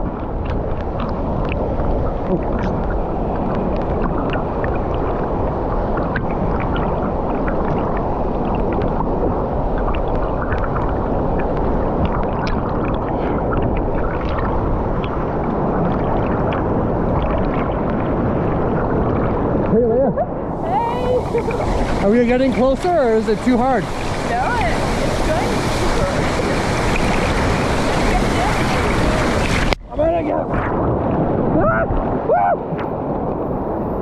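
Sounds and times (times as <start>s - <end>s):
water splashing: 0.0s - 34.0s
waterfall rushing: 20.4s - 34.0s.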